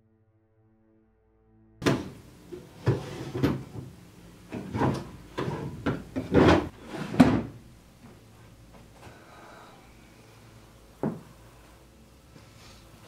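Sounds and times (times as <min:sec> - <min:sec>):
wooden drawers sliding and thudding: 0:01.8 - 0:07.6.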